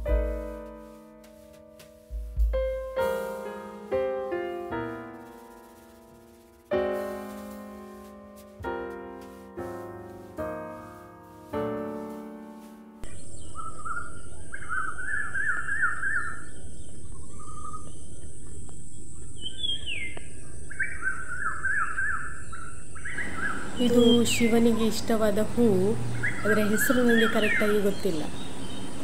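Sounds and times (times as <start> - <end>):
piano notes ringing: 0.0 - 13.3
background hiss: 0.0 - 13.4
bird chirping: 13.0 - 29.0.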